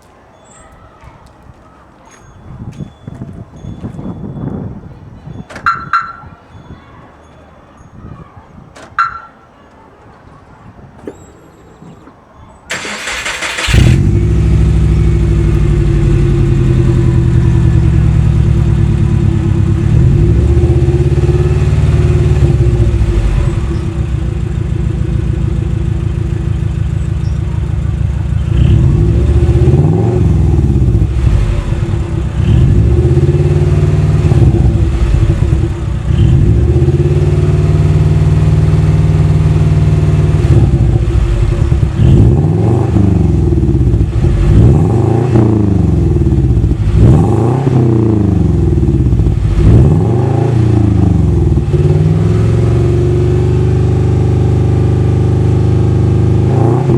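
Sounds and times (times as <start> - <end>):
car engine revving: 12.7 - 56.9.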